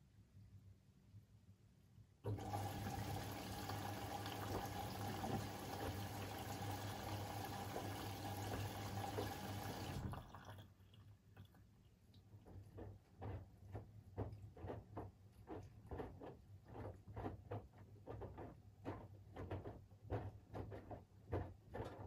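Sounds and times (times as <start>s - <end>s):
washing machine drawing water: 2.2s - 11.5s.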